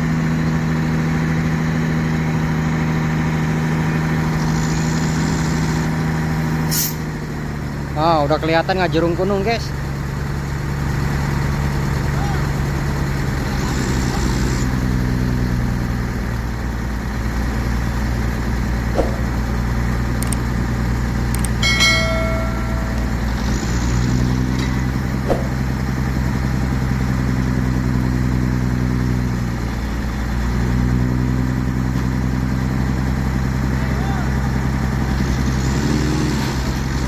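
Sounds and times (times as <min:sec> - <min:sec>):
diesel engine idling: 0:00.0 - 0:37.0
brief high-pitched tone: 0:21.6 - 0:23.7.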